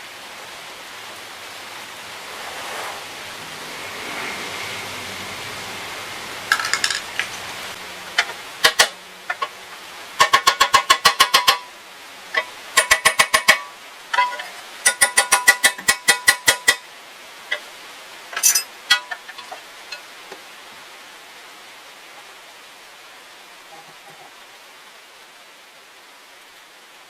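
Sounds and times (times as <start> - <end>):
hammer tapping on metal: 8.2 - 9.5, 10.2 - 11.7, 12.4 - 16.8.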